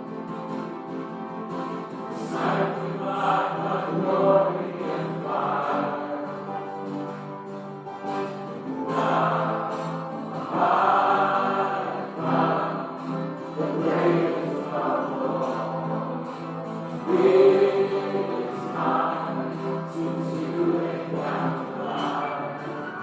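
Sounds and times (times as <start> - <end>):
choir singing a slow hymn: 1.0 - 7.5, 8.3 - 23.0.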